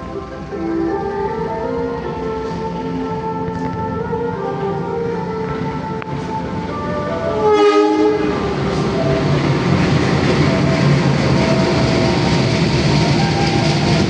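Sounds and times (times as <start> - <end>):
train rumbling and rattling: 0.0 - 14.0
train horn blast: 2.3 - 9.0, 12.9 - 14.0.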